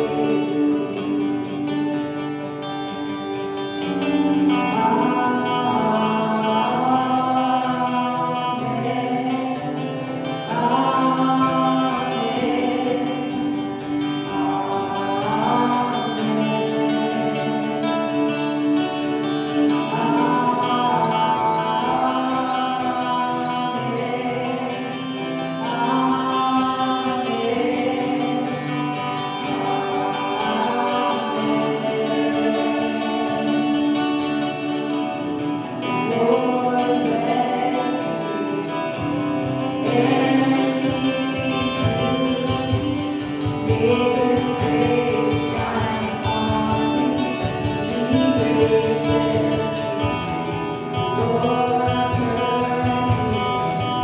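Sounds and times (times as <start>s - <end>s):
guitar: 0.0s - 54.0s
voices singing: 0.0s - 54.0s.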